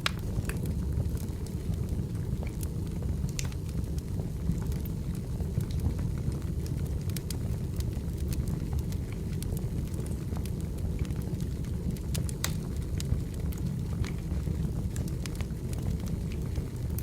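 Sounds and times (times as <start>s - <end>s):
firewood crackling and popping: 0.0s - 17.0s
low rumble of flames: 0.0s - 17.0s.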